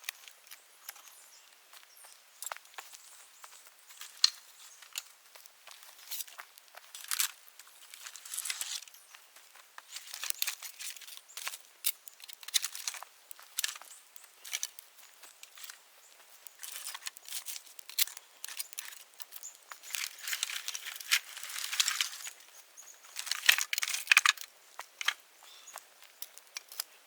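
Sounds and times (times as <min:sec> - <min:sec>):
bonfire crackling: 0:03.8 - 0:25.2.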